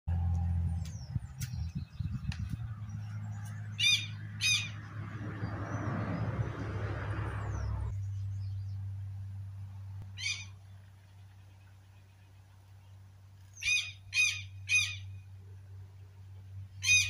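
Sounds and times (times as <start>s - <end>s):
steady low hum: 6.8s - 17.0s
short bird calls: 13.5s - 15.1s.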